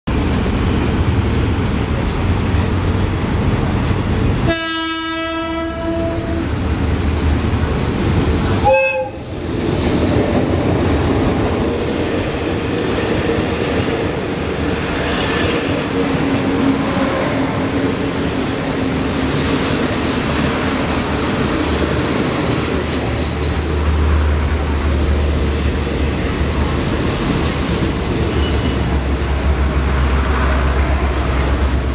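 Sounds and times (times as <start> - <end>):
train carriages rattling over rails: 0.1 - 4.5, 5.3 - 31.9
train horn: 4.4 - 6.5, 8.6 - 9.3.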